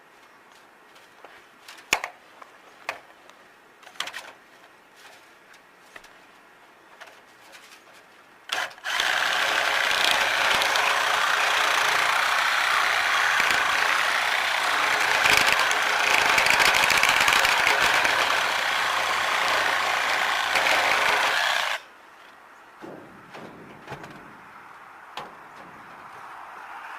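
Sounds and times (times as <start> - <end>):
power tool running: 8.6 - 21.9.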